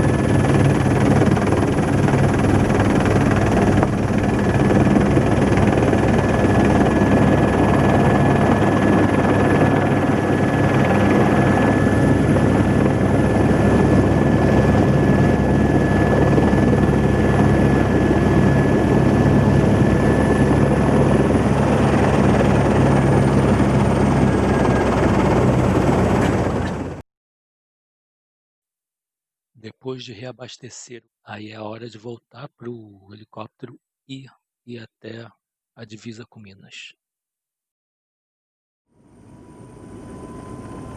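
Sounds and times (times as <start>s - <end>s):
helicopter rotor and engine: 0.0s - 27.0s, 39.0s - 40.9s
high turbine whine: 0.0s - 27.0s, 39.0s - 40.9s.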